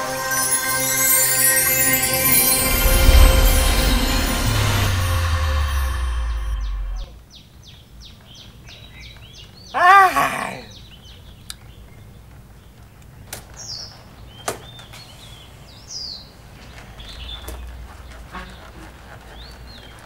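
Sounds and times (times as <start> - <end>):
low steady rumble: 2.6 - 7.2
birds chirping: 5.6 - 20.0.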